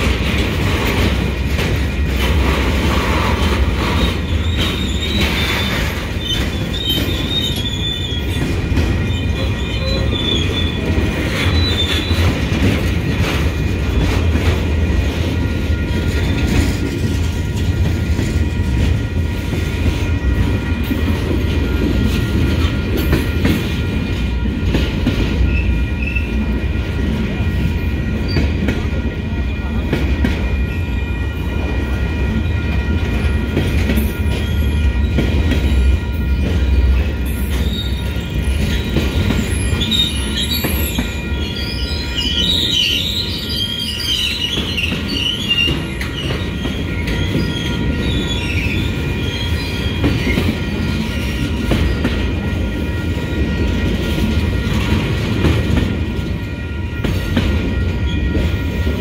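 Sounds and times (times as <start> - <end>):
wheels clacking over rail joints: 0.0 - 26.5
train wheels rumbling on rails: 0.0 - 59.0
wheel squeal: 2.9 - 12.5, 37.2 - 52.0.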